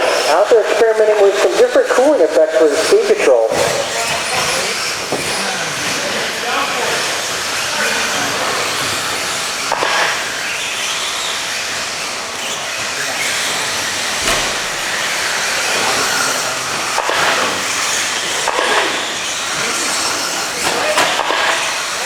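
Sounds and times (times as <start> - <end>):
rc trucks hissing past: 2.8 - 22.0
sharp knocks: 14.2 - 14.9, 18.4 - 19.0.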